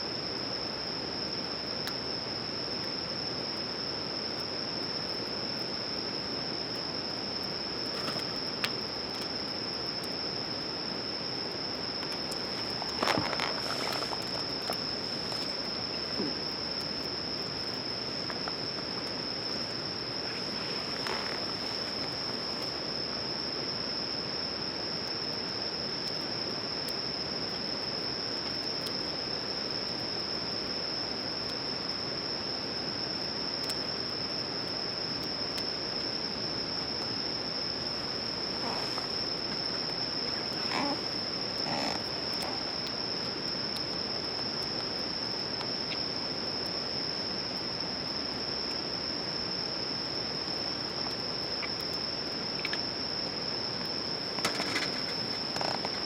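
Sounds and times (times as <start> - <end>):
crickets trilling: 0.0 - 56.0
steady hiss: 0.0 - 56.0
faint clicks: 52.6 - 52.8.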